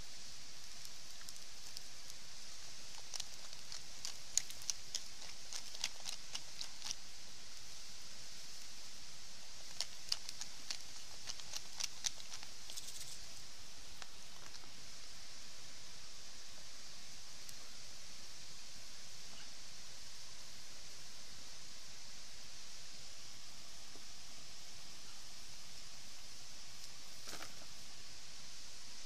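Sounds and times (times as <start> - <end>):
campfire crackling and popping: 0.6 - 2.2, 2.9 - 7.0.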